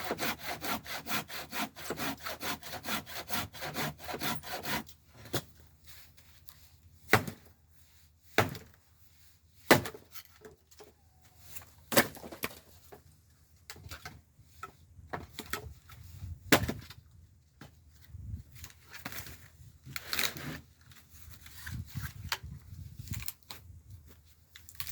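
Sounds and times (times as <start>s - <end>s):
scrap wood knocking and cracking: 11.9s - 13.1s, 13.7s - 17.0s.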